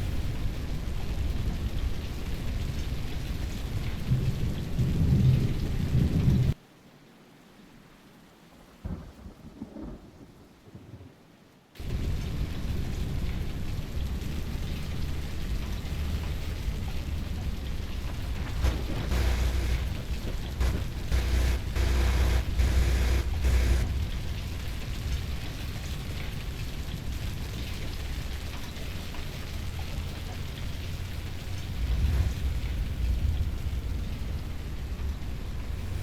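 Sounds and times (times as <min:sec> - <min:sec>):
rain and storm noise: 0:00.0 - 0:36.0
steady low rumble: 0:11.8 - 0:36.0.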